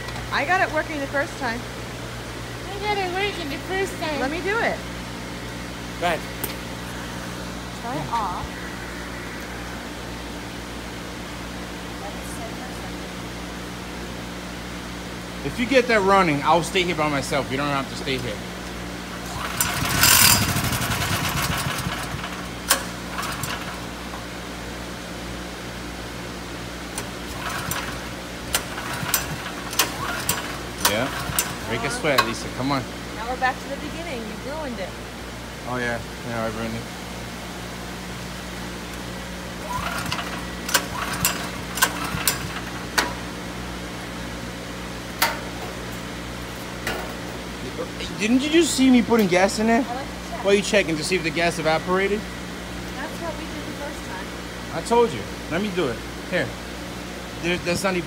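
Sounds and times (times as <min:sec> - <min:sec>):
generator engine running unevenly: 0:00.0 - 0:58.0
steady low hum: 0:00.0 - 0:58.0
engine sputter: 0:19.1 - 0:24.3, 0:26.9 - 0:32.5, 0:39.6 - 0:43.3.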